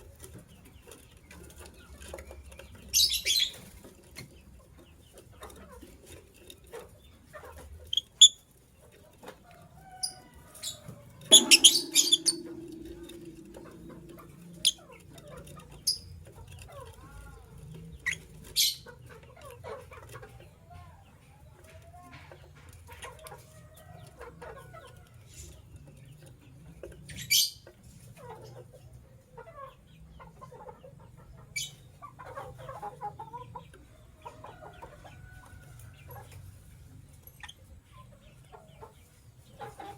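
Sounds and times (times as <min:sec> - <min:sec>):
lovebirds chattering softly: 0:10.0 - 0:14.8
lovebirds chirping shrilly: 0:11.3 - 0:12.8.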